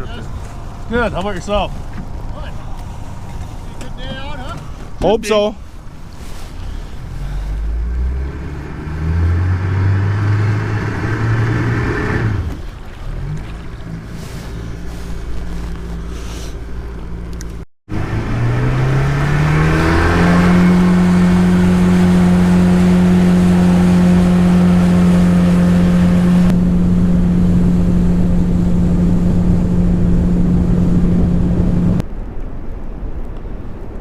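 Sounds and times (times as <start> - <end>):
wind and water noise: 0.0 - 34.0
outboard motor throttling up: 7.2 - 32.0.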